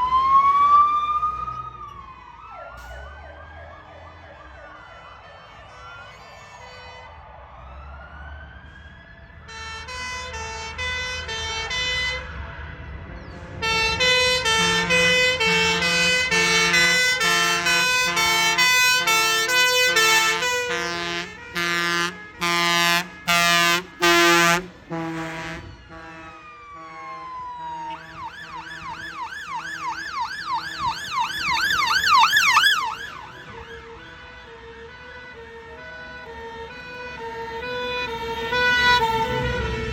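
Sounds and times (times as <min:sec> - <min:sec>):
fire engines rumbling: 0:00.0 - 0:39.9
two-tone sirens: 0:00.0 - 0:39.9
yelp siren: 0:00.0 - 0:39.9
short loud horn blasts: 0:20.0 - 0:27.0.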